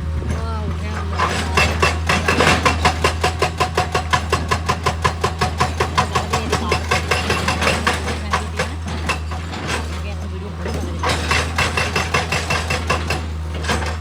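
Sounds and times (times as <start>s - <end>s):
machine humming: 0.0s - 14.0s
rapid knocking strikes: 10.8s - 14.0s.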